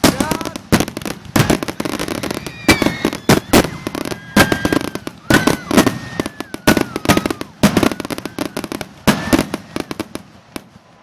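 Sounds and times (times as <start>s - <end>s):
fireworks bangs and crackling: 0.0s - 11.0s
fireworks whistles: 0.0s - 11.0s.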